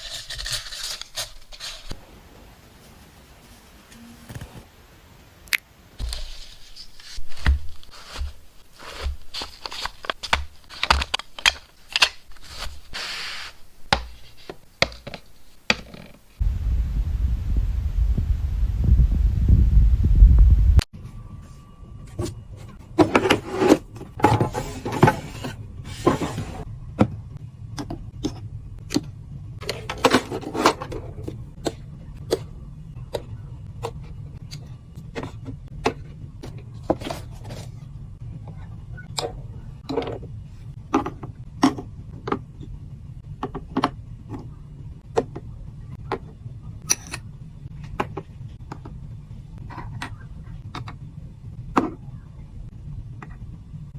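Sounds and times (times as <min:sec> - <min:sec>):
rustling and scraping: 0:00.0 - 0:02.0, 0:06.0 - 0:16.4, 0:21.3 - 0:26.7, 0:29.6 - 0:31.4, 0:36.4 - 0:38.0
steady low hum: 0:16.4 - 0:23.0.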